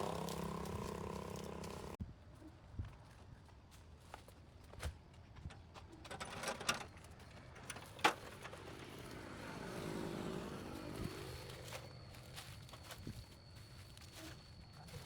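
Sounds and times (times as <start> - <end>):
road vehicle passing by: 0.0 - 2.0, 7.7 - 12.6.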